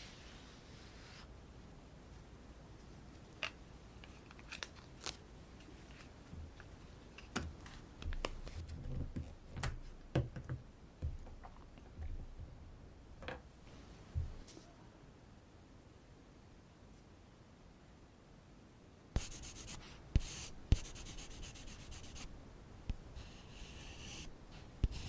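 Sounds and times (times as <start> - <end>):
soft thuds: 14.1 - 14.5.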